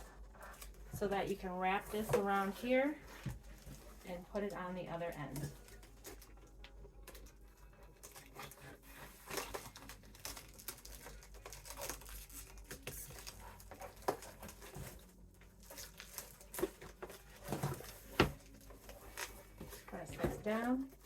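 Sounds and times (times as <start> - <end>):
tape and board rustling: 5.2 - 21.0.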